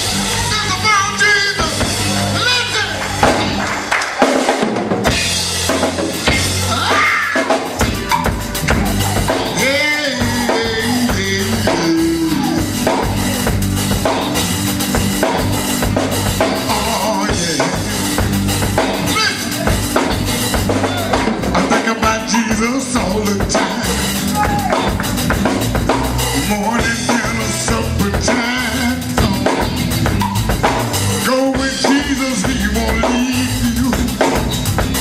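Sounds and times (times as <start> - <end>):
drum kit: 0.0 - 35.0
gospel band playing: 0.0 - 35.0
low bass line: 5.1 - 7.1, 7.8 - 35.0
voice or lead line: 6.3 - 13.6, 19.0 - 24.9.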